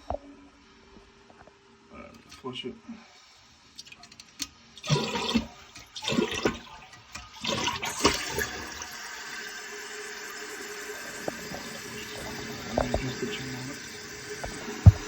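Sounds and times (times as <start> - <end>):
toilet flushing: 4.7 - 15.0.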